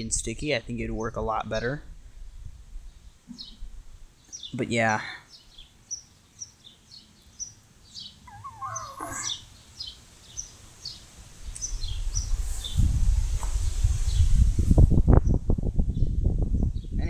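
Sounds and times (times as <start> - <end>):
small birds chirping: 2.8 - 12.9, 13.5 - 14.4
lower sliding bird call: 7.4 - 12.8.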